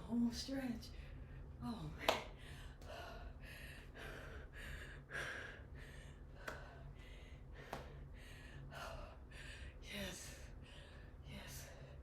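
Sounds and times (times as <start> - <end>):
woman breathing hard: 2.3 - 9.8.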